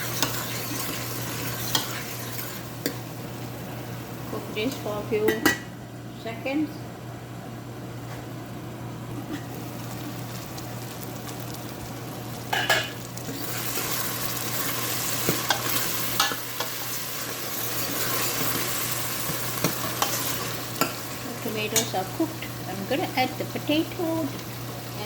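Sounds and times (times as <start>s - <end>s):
spoon scraping a pot: 0.0s - 2.6s
food sizzling in a pot: 0.0s - 4.3s, 9.4s - 25.0s.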